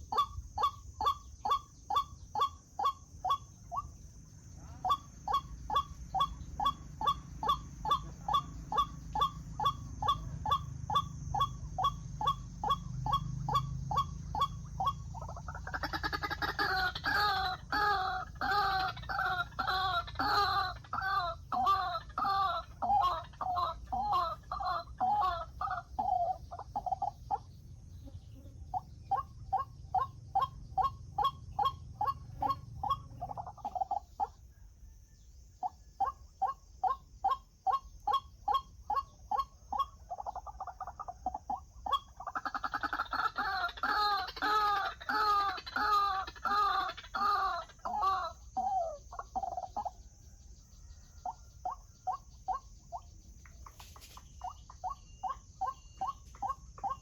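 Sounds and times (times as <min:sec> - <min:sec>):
waterhen calling: 0:00.0 - 0:03.9, 0:04.8 - 0:34.4, 0:35.6 - 0:50.2, 0:50.9 - 0:57.0.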